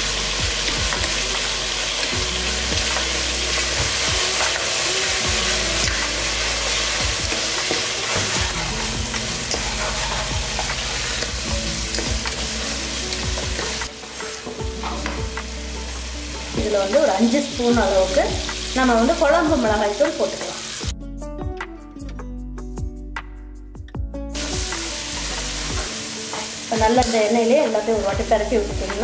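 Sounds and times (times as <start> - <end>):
food sizzling in a pan: 0.0 - 20.9, 24.3 - 29.0
spoon stirring and scraping: 6.7 - 12.2.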